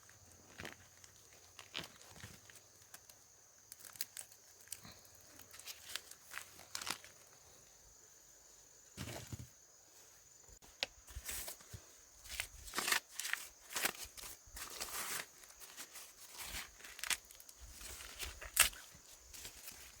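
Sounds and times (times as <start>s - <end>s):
dry corn leaves rustling: 0.0s - 7.4s, 11.0s - 20.0s
corn ears snapping off: 18.0s - 18.9s.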